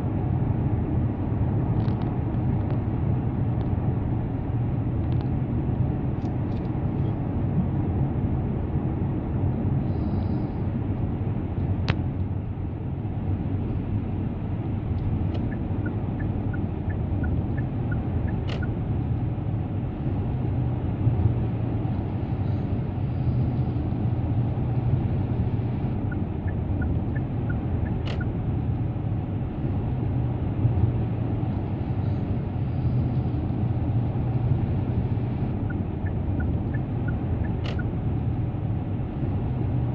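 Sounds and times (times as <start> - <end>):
car tyre and road noise: 0.0 - 39.9
brief clicks: 37.5 - 37.9.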